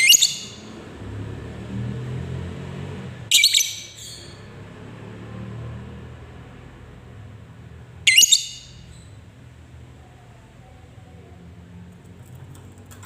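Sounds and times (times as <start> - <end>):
bird shrill chattering calls: 0.0 - 0.7, 3.3 - 4.4, 8.1 - 8.9.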